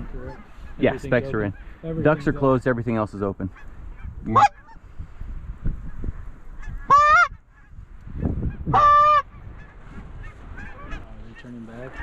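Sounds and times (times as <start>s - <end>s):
low wind noise: 0.0s - 12.0s
goose honks: 3.5s - 4.8s, 6.6s - 7.8s, 8.4s - 12.0s.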